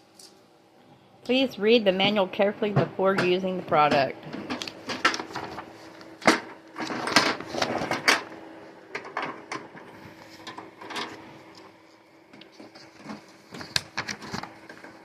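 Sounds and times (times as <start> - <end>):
faint steady hum: 0.0 - 15.0
packaging rustling and crinkling: 4.6 - 8.3, 10.1 - 15.0.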